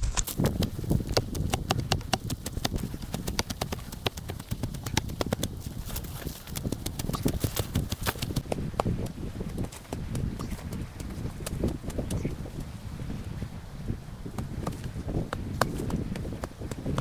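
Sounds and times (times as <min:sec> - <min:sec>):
campfire crackling and popping: 0:00.0 - 0:10.8.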